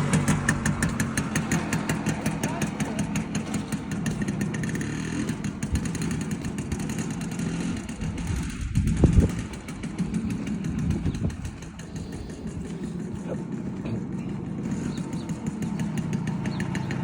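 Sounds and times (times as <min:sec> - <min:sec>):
moped two-stroke engine running: 0:00.0 - 0:17.0.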